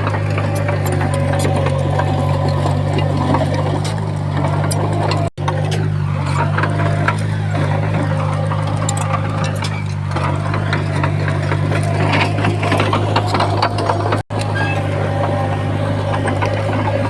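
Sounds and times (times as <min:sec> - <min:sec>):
diesel engine running: 0:00.0 - 0:17.0
machine clanking and rattling: 0:00.0 - 0:17.0.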